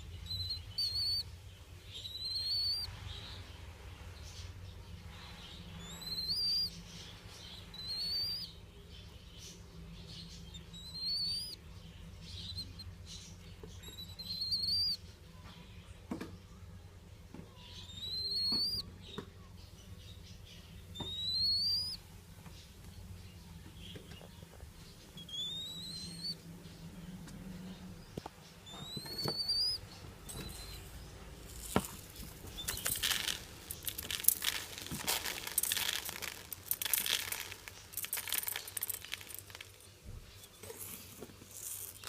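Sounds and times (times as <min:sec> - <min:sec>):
chick whistled begging calls: 0:02.0 - 0:02.9, 0:07.7 - 0:08.6, 0:10.6 - 0:11.6, 0:13.8 - 0:15.0, 0:17.8 - 0:18.8, 0:21.0 - 0:22.0, 0:25.2 - 0:26.4, 0:28.7 - 0:30.9
wings fluttering: 0:28.7 - 0:39.8.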